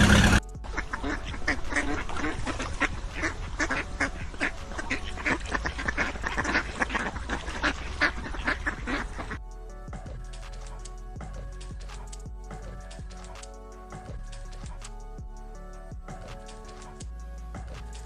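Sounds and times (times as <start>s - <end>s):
loud engine: 0.0s - 0.4s
ducks quacking: 0.0s - 9.4s
music: 0.0s - 18.0s.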